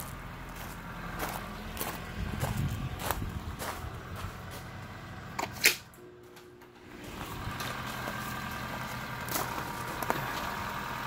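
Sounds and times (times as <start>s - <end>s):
footsteps: 0.0s - 4.9s
car engine idling: 0.0s - 11.0s.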